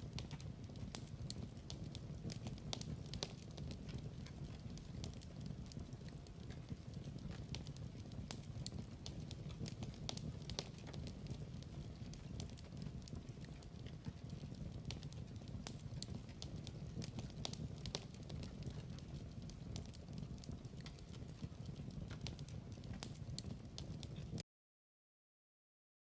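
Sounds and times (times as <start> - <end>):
fire pops and snaps: 0.0 - 24.4
fire rumbling: 0.0 - 24.4.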